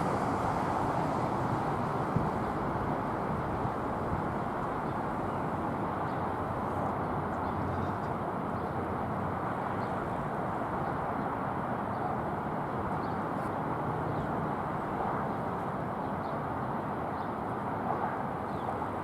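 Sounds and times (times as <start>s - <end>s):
jet engines running: 0.0s - 6.5s.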